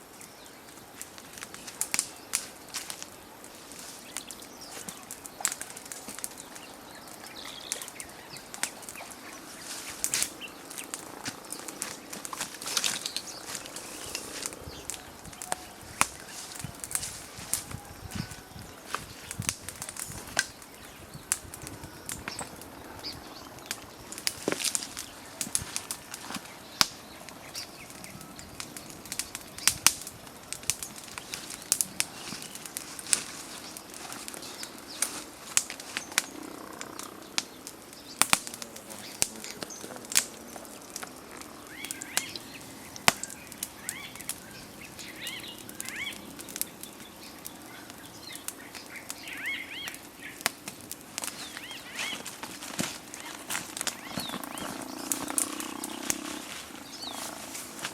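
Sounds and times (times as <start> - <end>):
sharp clicks and cracks: 0.7 - 57.9
small bird chirps: 30.7 - 50.5.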